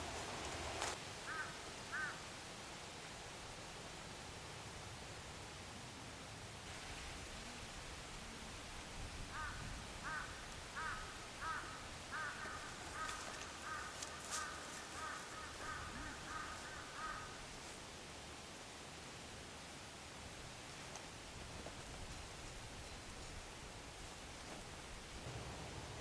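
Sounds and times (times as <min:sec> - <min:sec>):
crow cawing: 0:01.2 - 0:02.2, 0:09.3 - 0:17.4.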